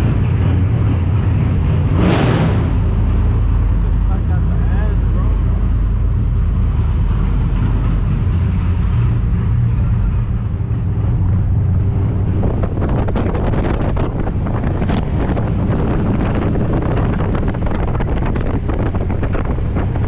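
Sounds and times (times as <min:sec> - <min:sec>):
road noise: 0:00.0 - 0:20.0
vehicle engine rumble: 0:00.0 - 0:20.0
wind buffeting microphone: 0:05.7 - 0:20.0.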